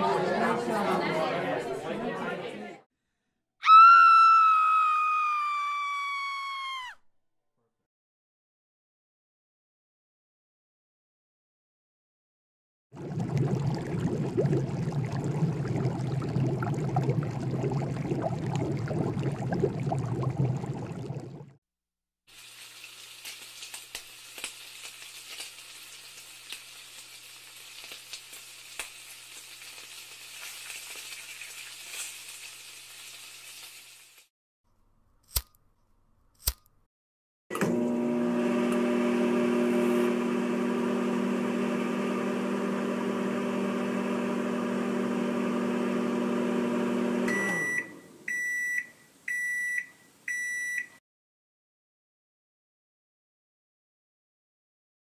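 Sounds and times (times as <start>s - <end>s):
sharp clicks: 36.4s - 36.8s
loud appliance hum: 37.6s - 47.3s.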